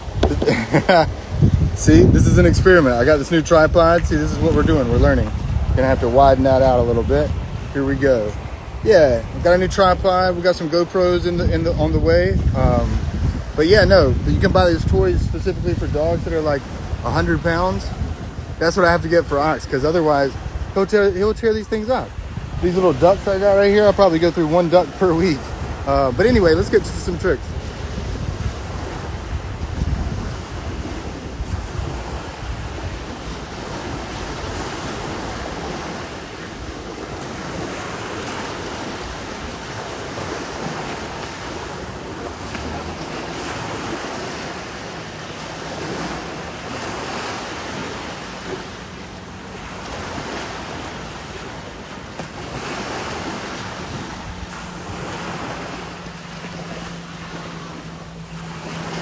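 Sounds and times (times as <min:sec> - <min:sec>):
ocean surf washing onto beach: 0:00.0 - 0:59.0
wind buffeting microphone: 0:00.0 - 0:59.0.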